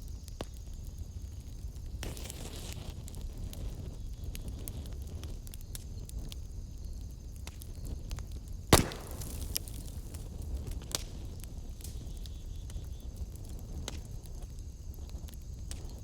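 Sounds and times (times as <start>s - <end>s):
wood fire crackling: 0.0s - 16.0s
sharp loud pop: 8.7s - 9.9s.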